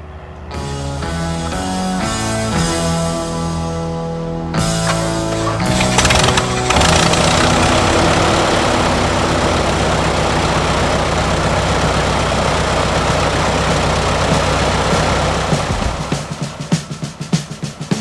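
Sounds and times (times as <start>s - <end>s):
aircraft engine and propeller running: 4.4s - 18.0s.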